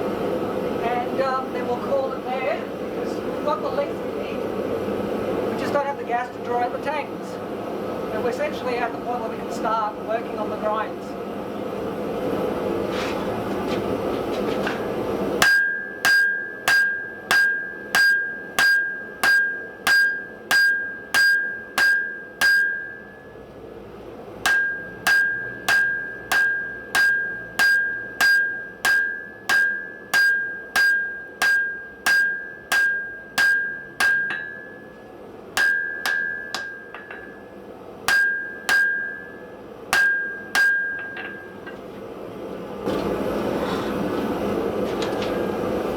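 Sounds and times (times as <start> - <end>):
hammer ringing on anvil: 15.4 - 23.5, 24.4 - 41.8.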